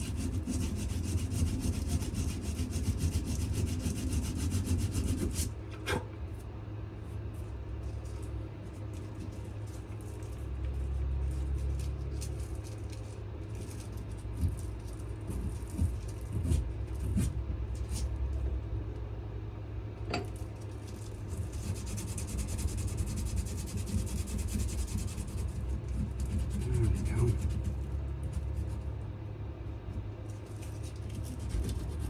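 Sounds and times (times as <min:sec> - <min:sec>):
sandpaper rasping on wood: 0:00.0 - 0:05.5, 0:21.3 - 0:27.8, 0:30.9 - 0:32.0.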